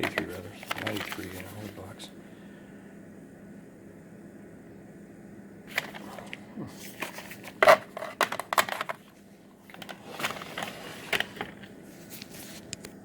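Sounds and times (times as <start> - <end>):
plastic cassette cases clacking: 0.0 - 1.4, 7.0 - 9.0.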